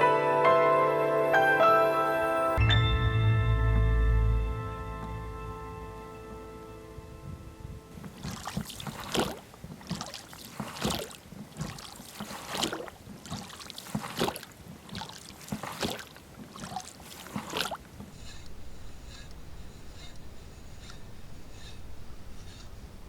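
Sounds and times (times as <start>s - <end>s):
paddle splashes in water: 8.0s - 18.5s.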